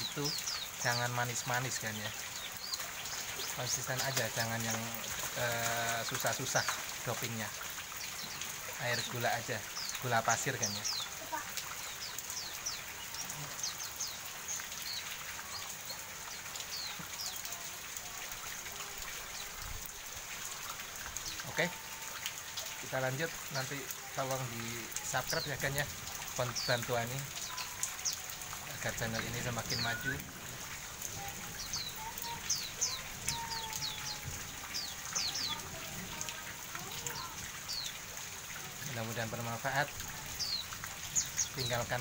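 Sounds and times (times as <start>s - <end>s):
bird chirping: 0.0s - 17.5s, 24.6s - 30.4s
rain pattering: 0.0s - 42.0s.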